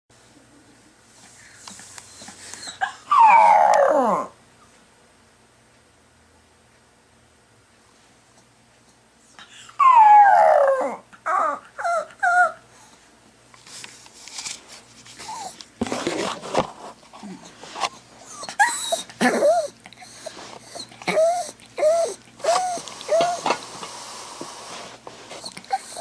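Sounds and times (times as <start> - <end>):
dog whining: 2.1 - 4.4, 9.3 - 12.7, 15.2 - 15.6, 18.2 - 23.7, 25.3 - 26.0
dog yelping: 2.2 - 4.3, 9.4 - 12.6, 18.2 - 23.5
dog howling: 2.6 - 4.4, 9.8 - 12.6, 20.8 - 23.6
dog breathing: 17.2 - 26.0.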